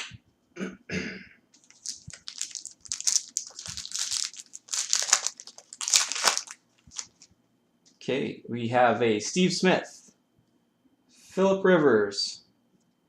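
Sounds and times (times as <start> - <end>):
foil wrapper tearing and crinkling: 1.6 - 7.3.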